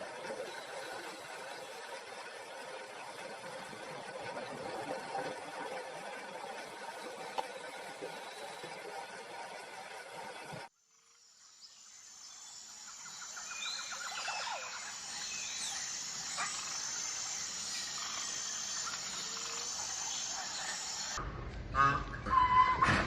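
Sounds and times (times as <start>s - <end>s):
steady high hiss: 11.4s - 21.2s
birds chirping and trilling: 11.6s - 21.2s.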